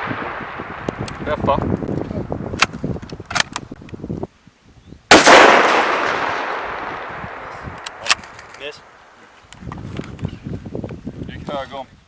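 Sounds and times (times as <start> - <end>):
rifle shot with echo: 0.0 - 1.6, 5.1 - 9.1.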